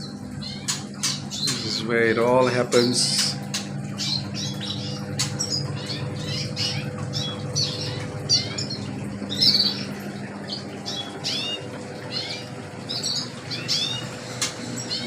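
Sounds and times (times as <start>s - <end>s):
steady low hum: 0.0s - 15.0s
songbirds chirping: 0.1s - 15.0s.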